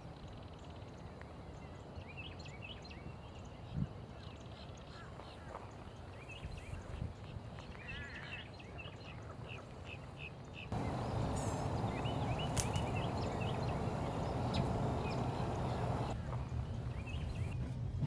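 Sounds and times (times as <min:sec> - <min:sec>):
bird calls: 0:10.8 - 0:16.2
steady background rush: 0:10.8 - 0:16.2.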